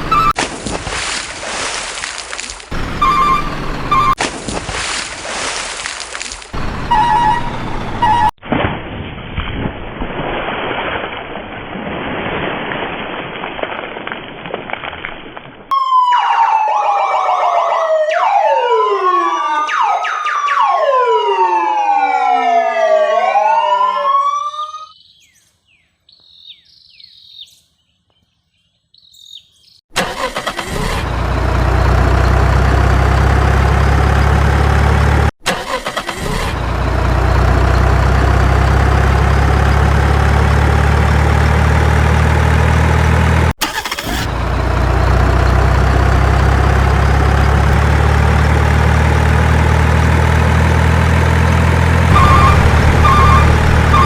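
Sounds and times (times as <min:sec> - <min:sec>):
low engine drone: 0:00.0 - 0:00.4, 0:02.7 - 0:04.2, 0:30.6 - 0:35.3, 0:36.3 - 0:54.0
sirens wailing: 0:00.0 - 0:00.4, 0:02.7 - 0:04.2, 0:06.6 - 0:08.4, 0:15.7 - 0:24.9, 0:30.1 - 0:54.0.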